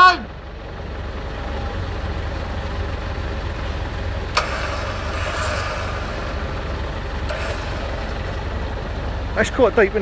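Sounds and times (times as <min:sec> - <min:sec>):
car engine idling: 0:00.0 - 0:10.0
hissing noise: 0:04.4 - 0:09.0.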